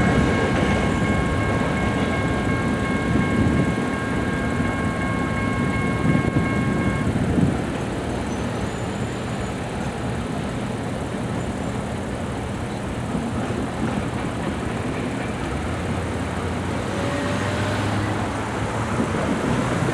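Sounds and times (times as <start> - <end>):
steady high tone: 0.0 - 7.3
freight train rumble and clatter: 0.0 - 19.9
road traffic noise: 0.0 - 19.9.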